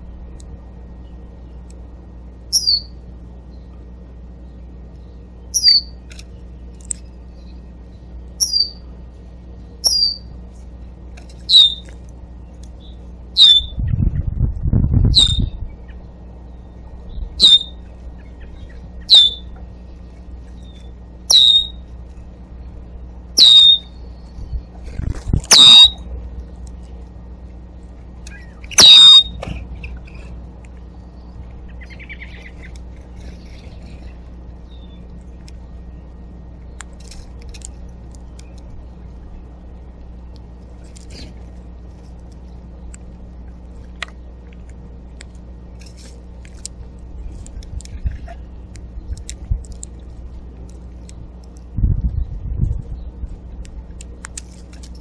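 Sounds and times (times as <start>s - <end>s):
high squawk: 2.5s - 3.0s, 5.5s - 6.0s, 8.4s - 8.9s, 9.8s - 10.4s, 11.4s - 11.9s, 12.8s - 13.9s, 15.1s - 16.1s, 17.2s - 19.6s, 20.6s - 21.8s, 23.4s - 24.0s, 25.4s - 26.1s, 28.3s - 30.2s.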